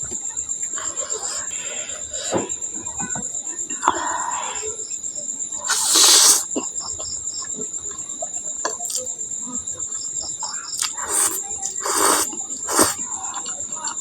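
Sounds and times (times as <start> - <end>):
insect trill: 0.0 - 14.0
slurps or bites: 5.7 - 6.5, 10.8 - 13.0.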